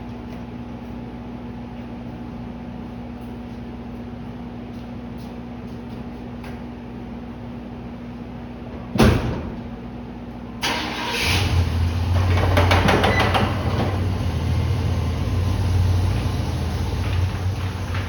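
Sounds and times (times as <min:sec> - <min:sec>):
truck engine idling: 0:13.4 - 0:18.0.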